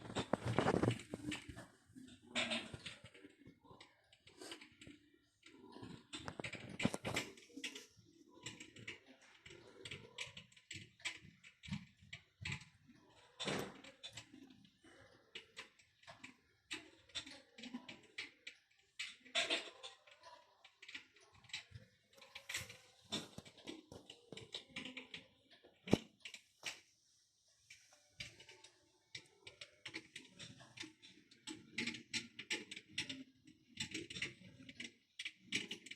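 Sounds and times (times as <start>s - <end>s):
electric fireplace crackling: 0.0s - 35.9s.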